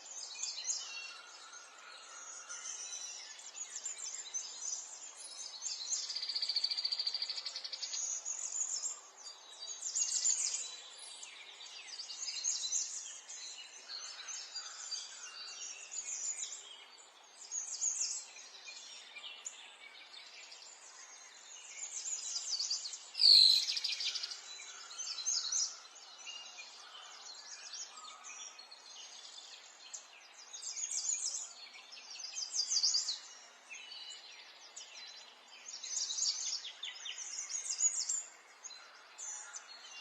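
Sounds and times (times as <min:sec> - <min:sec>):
songbirds chirping and trilling: 0:00.0 - 0:40.0.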